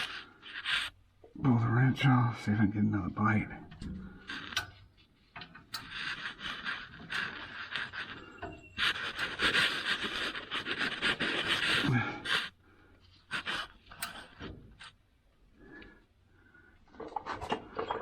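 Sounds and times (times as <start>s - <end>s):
wrench clicking and scraping: 4.3s - 9.7s, 13.3s - 14.4s.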